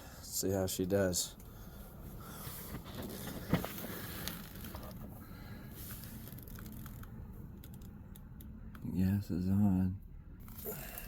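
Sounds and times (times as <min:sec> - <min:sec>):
faint handling noise: 0:01.4 - 0:08.5.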